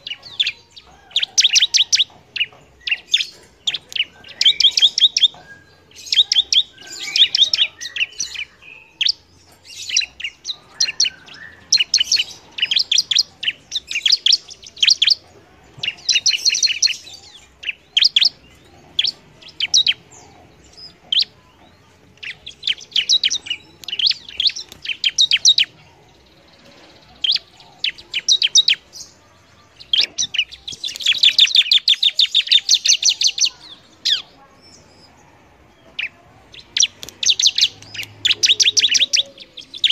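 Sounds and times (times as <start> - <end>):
bird singing rapid high chirps: 0.0 - 35.2, 35.8 - 39.9.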